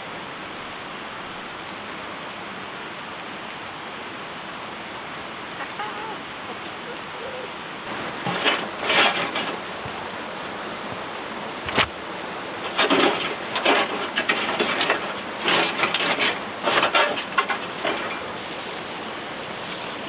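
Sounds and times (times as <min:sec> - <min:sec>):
firewood snapping and splintering: 0:07.9 - 0:10.3, 0:10.9 - 0:20.0.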